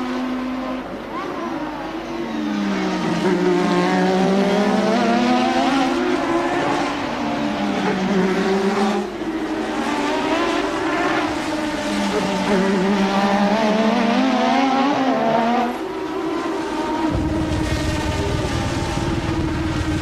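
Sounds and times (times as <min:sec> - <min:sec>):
race car engine at high revs: 0:00.0 - 0:20.0.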